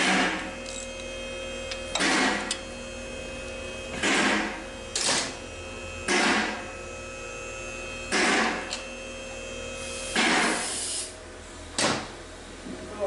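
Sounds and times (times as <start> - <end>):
workshop hum: 0.0 - 13.0
power tool hissing bursts: 9.8 - 11.2.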